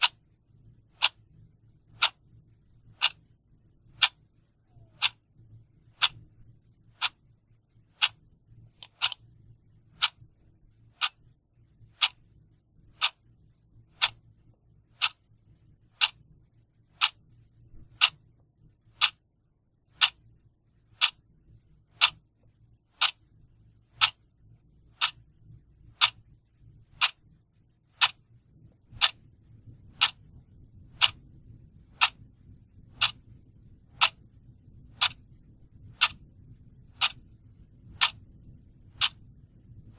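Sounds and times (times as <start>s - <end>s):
clock ticking: 0.0s - 0.3s, 0.9s - 2.3s, 2.9s - 5.2s, 5.8s - 7.2s, 7.9s - 9.3s, 9.9s - 11.3s, 11.9s - 12.3s, 12.9s - 14.3s, 14.9s - 15.3s, 15.9s - 16.2s, 16.9s - 19.3s, 20.0s - 20.2s, 20.9s - 21.3s, 21.9s - 22.3s, 22.9s - 24.3s, 24.9s - 25.3s, 25.9s - 26.3s, 26.9s - 27.3s, 27.9s - 39.9s.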